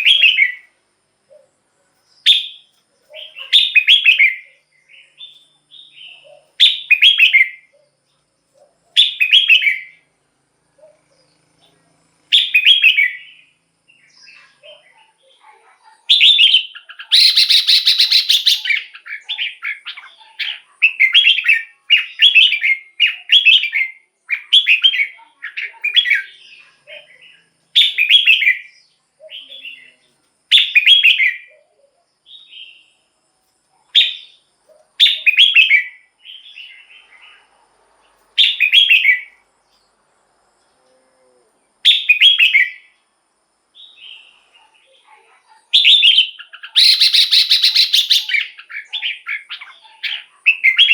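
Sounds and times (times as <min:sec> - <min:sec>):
bird singing whistled phrases: 0:00.0 - 0:00.7, 0:02.2 - 0:07.7, 0:09.0 - 0:10.0, 0:12.4 - 0:13.5, 0:16.1 - 0:26.3, 0:27.8 - 0:29.9, 0:30.5 - 0:31.5, 0:35.0 - 0:36.7, 0:38.4 - 0:39.4, 0:41.9 - 0:42.9, 0:45.8 - 0:50.9.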